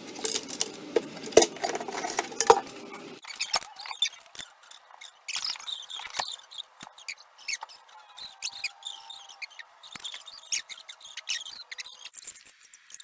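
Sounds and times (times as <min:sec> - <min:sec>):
hands turning knobs and bolts: 0:00.0 - 0:03.2.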